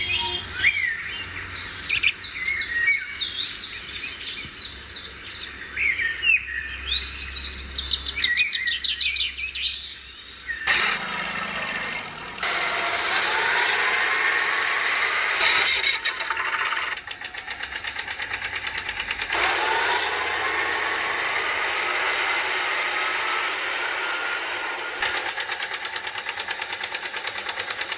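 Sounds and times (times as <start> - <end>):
birds chirping: 0.0 - 12.5
motor whining: 10.7 - 27.9.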